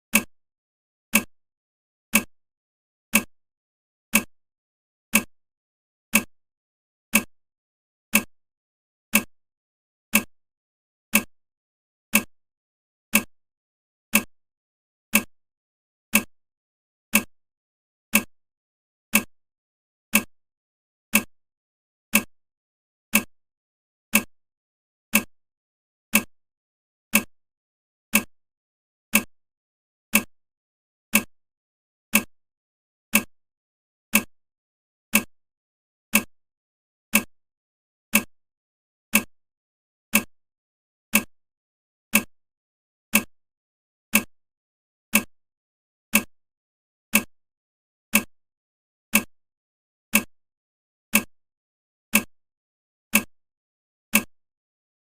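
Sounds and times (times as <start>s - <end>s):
clock ticking: 0.1s - 0.3s, 1.1s - 1.3s, 2.1s - 2.3s, 3.1s - 3.3s, 4.1s - 4.3s, 5.1s - 5.3s, 6.1s - 6.3s, 7.1s - 7.3s, 8.1s - 8.3s, 9.1s - 9.3s, 10.1s - 10.3s, 11.1s - 11.3s, 12.1s - 12.3s, 13.1s - 13.3s, 14.1s - 14.3s, 15.1s - 15.3s, 16.1s - 16.3s, 17.1s - 17.3s, 18.1s - 18.3s, 19.1s - 19.3s, 20.1s - 20.3s, 21.1s - 21.3s, 22.1s - 22.3s, 23.1s - 23.3s, 24.1s - 24.3s, 25.1s - 25.3s, 26.1s - 26.3s, 27.1s - 27.3s, 28.1s - 28.3s, 29.1s - 29.3s, 30.1s - 30.3s, 31.1s - 31.3s, 32.1s - 32.3s, 33.1s - 33.3s, 34.1s - 34.3s, 35.1s - 35.3s, 36.1s - 36.3s, 37.1s - 37.3s, 38.1s - 38.3s, 39.1s - 39.3s, 40.1s - 40.3s, 41.1s - 41.3s, 42.1s - 42.3s, 43.1s - 43.3s, 44.1s - 44.3s, 45.1s - 45.3s, 46.1s - 46.3s, 47.1s - 47.3s, 48.1s - 48.3s, 49.1s - 49.3s, 50.1s - 50.3s, 51.1s - 51.3s, 52.1s - 52.3s, 53.1s - 53.3s, 54.1s - 54.3s.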